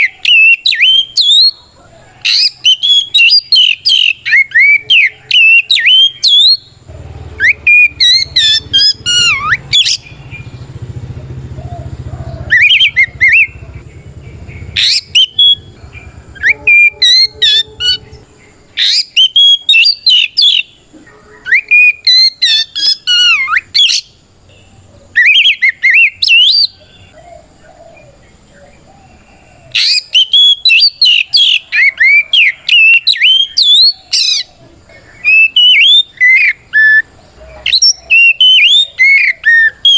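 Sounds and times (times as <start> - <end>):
bird singing whistles and chatter: 0.0 - 1.6, 2.2 - 10.8, 12.5 - 27.2, 29.7 - 34.5, 35.1 - 39.9
low rumble: 9.0 - 18.8.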